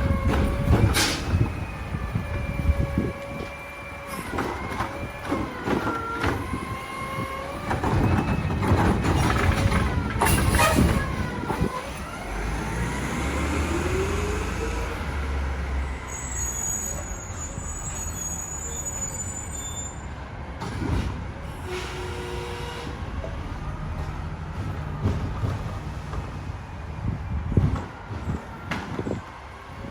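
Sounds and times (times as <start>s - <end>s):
truck diesel engine rising: 0.0s - 21.6s
brakes squealing: 0.0s - 23.9s.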